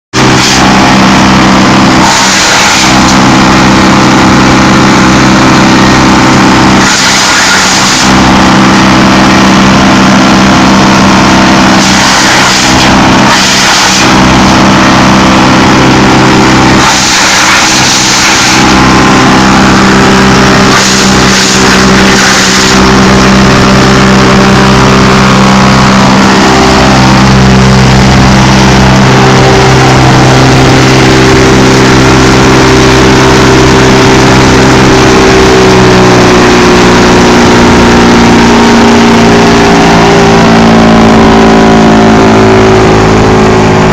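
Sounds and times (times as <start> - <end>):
diesel engine running: 0.1 - 43.9
wood chipping noise: 1.9 - 3.2, 6.7 - 8.2, 11.6 - 14.6, 16.7 - 24.0.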